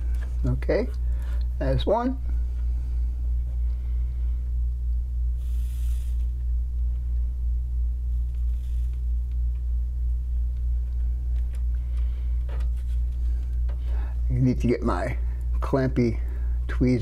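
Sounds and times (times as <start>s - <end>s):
low electrical hum: 0.0s - 17.0s
flux sizzling under soldering iron: 5.3s - 6.6s, 8.0s - 10.6s.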